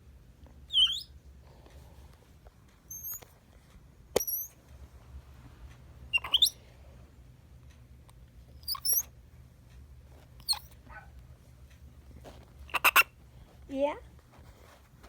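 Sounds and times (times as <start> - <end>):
monkey high squeaks: 0.7 - 1.1, 2.9 - 3.3, 4.2 - 4.6, 6.1 - 6.6, 8.6 - 9.1, 10.4 - 10.8, 12.7 - 13.1.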